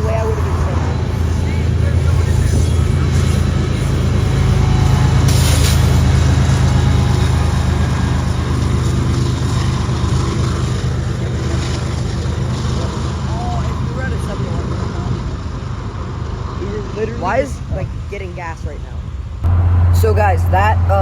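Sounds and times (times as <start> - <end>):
freight train rumble: 0.0 - 21.0.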